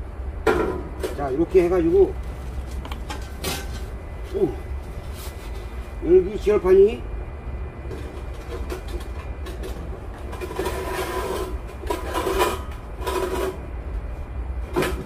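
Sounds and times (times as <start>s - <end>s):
steel plate scraping against bricks: 7.9s - 13.7s.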